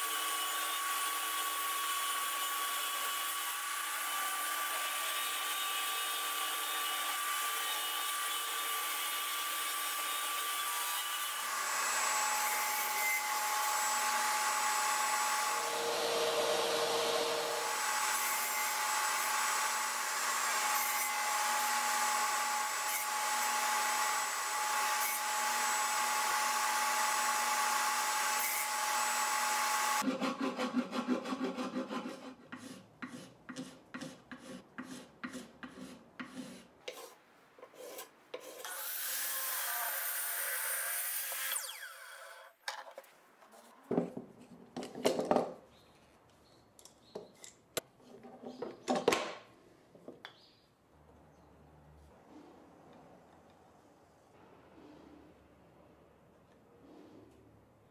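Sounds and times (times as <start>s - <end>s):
table saw cutting wood: 0.0s - 33.2s, 37.8s - 42.6s
hand-sanding strokes on wood: 30.0s - 37.1s.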